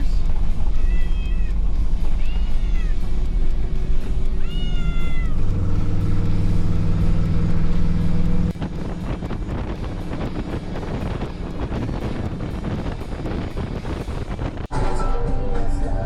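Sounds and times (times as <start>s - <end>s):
wind noise on microphone: 0.0s - 15.0s
cat meowing: 0.7s - 1.6s, 2.2s - 3.1s, 4.3s - 5.5s.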